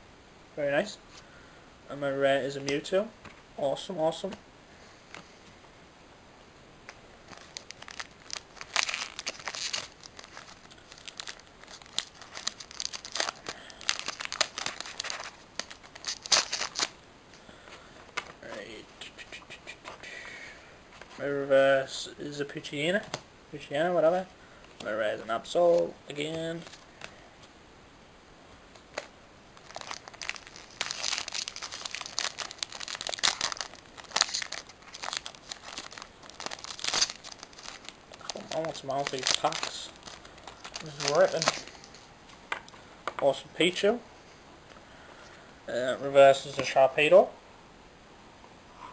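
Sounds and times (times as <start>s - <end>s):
foil wrapper crinkling and tearing: 7.2s - 17.0s, 28.9s - 42.1s.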